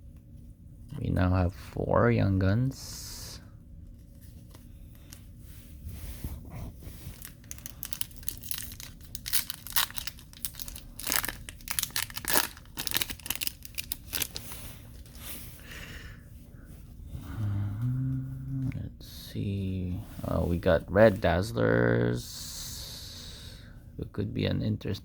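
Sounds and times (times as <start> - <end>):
wrapper tearing and crinkling: 7.1 - 15.2.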